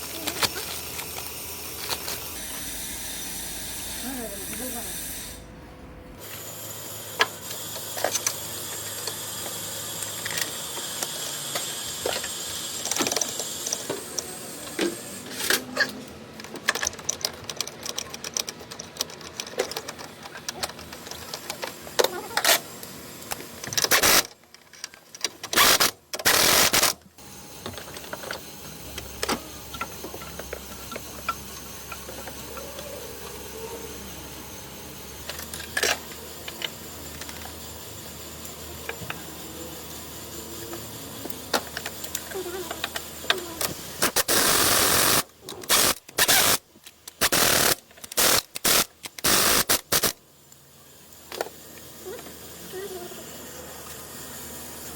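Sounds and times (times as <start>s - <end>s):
mechanical clicking and tapping: 16.4s - 22.1s.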